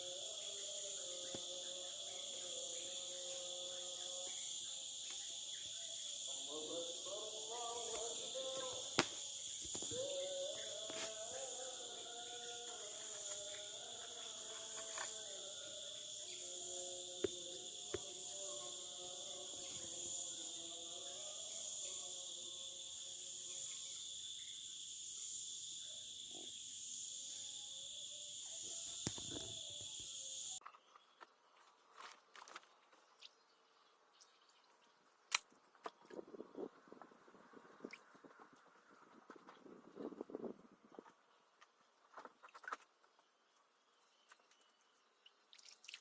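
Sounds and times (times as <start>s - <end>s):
forest insects droning: 0.0s - 46.0s.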